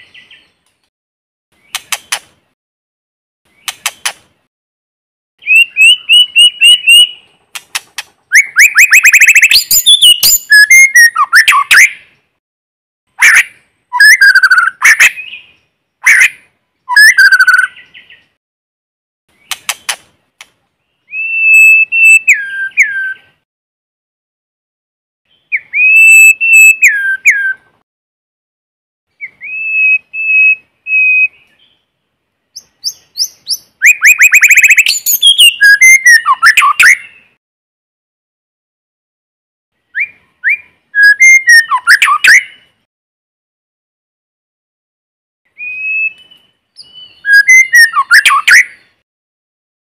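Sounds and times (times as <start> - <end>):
songbird trills and whistles: 5.4 - 7.3, 8.3 - 12.2, 13.2 - 18.4, 20.9 - 23.4, 25.3 - 27.7, 29.1 - 31.8, 32.5 - 37.4, 39.9 - 42.7, 45.5 - 49.0.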